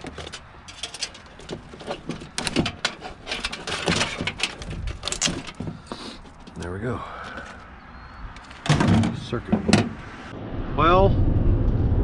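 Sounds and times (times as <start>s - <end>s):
knocks clicks and scrapes of scrap: 0.0s - 7.7s.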